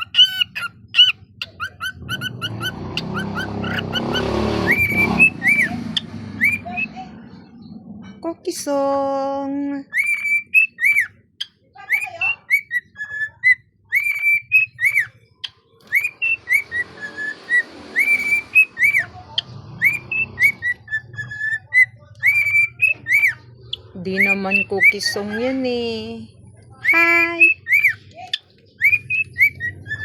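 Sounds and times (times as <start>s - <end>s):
cockatiel whistling: 0.0s - 6.9s, 9.9s - 11.2s, 11.9s - 15.2s, 15.8s - 19.2s, 19.8s - 25.4s, 26.8s - 30.0s.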